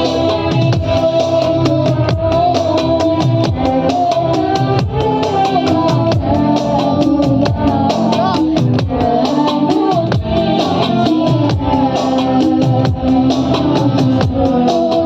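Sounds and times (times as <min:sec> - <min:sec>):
worship song with drum beat: 0:00.0 - 0:15.0.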